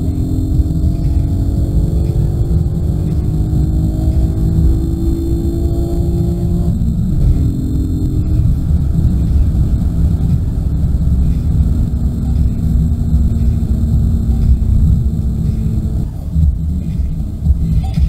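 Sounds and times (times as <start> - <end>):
car engine droning: 0.0 - 18.0
road rumble: 0.0 - 18.0.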